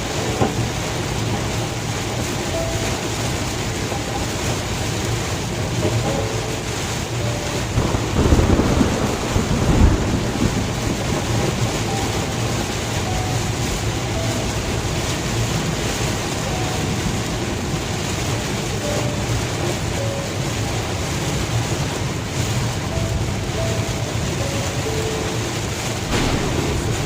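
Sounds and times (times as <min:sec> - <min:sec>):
heavy rain on a car: 0:00.0 - 0:27.0
road noise: 0:00.0 - 0:27.0
low rumble: 0:26.0 - 0:27.0.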